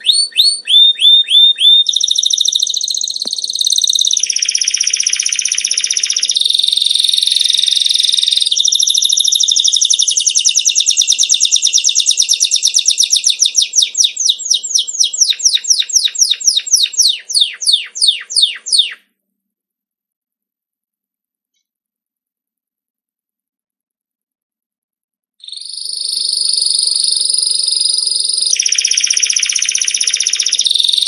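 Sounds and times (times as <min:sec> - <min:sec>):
songbird singing: 0:00.0 - 0:19.0, 0:25.4 - 0:31.0.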